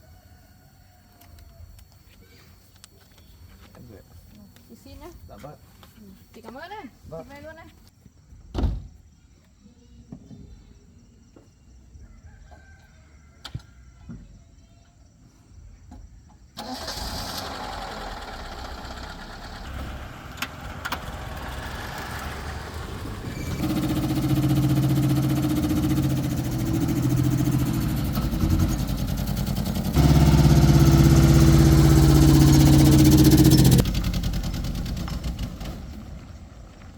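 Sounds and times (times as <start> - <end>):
car engine starting and running: 16.6 - 36.9.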